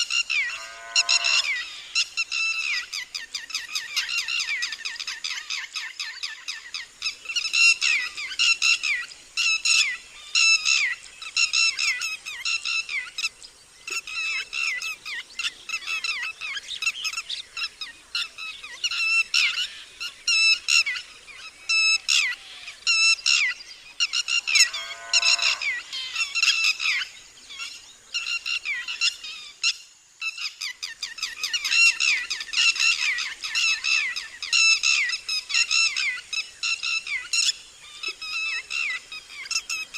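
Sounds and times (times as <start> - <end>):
lapwing alarm call: 0.0 - 13.3, 14.0 - 39.9.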